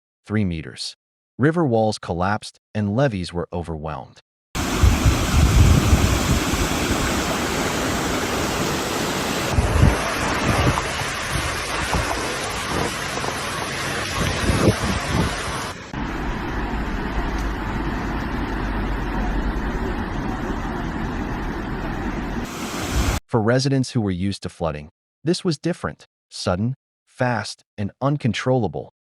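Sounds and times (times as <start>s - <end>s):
wind buffeting microphone: 4.6s - 8.6s, 9.4s - 23.2s
floodwater rushing: 4.6s - 23.2s.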